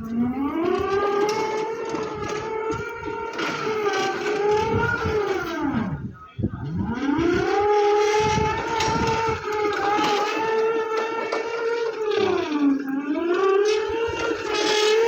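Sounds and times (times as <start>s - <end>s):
electric motor whine: 0.0s - 15.0s.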